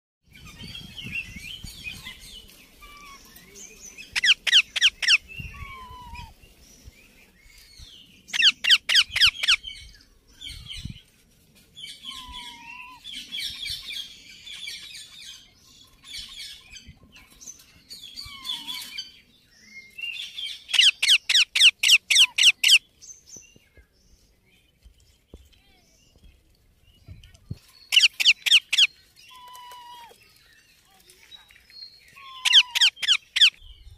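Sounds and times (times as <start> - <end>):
parrot chattering chirps: 4.2 - 5.8, 20.7 - 22.8, 27.9 - 29.8, 32.2 - 33.6.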